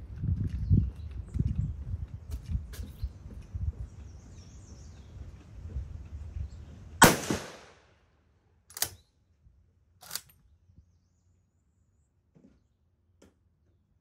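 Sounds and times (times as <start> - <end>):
rifle shot with echo: 7.0 - 7.9
rifle bolt metallic clicks: 8.7 - 9.0, 10.0 - 10.4.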